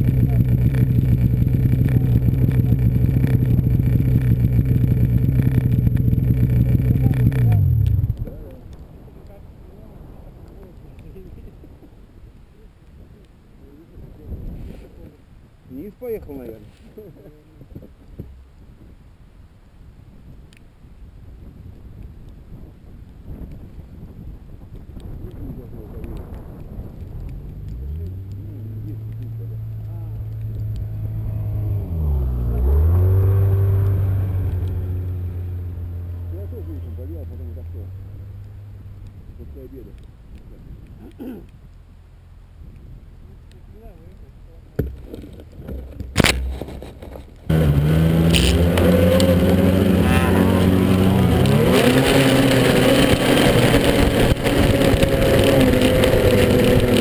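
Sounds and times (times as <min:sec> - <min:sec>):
snowmobile engine revving: 0:00.0 - 0:08.5, 0:27.1 - 0:38.6, 0:44.8 - 0:57.0.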